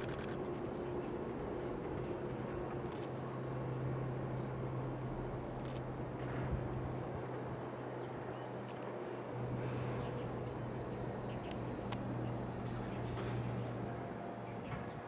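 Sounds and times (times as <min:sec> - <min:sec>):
insect chirping: 0:00.0 - 0:15.0
locomotive engine humming: 0:00.0 - 0:15.0.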